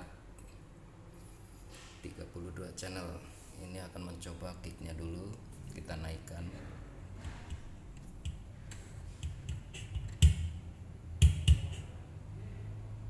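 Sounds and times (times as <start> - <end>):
kick drum thumps: 7.2 - 10.6, 11.2 - 11.9.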